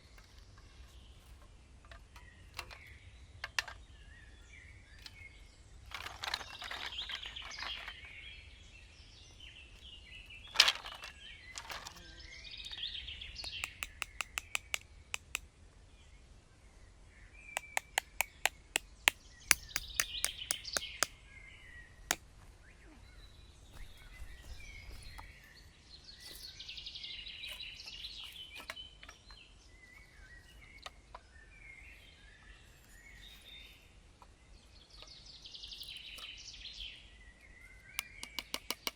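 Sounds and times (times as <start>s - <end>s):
birds chirping: 0.0s - 38.9s
rapid sharp clicks: 13.5s - 15.4s, 17.6s - 21.1s.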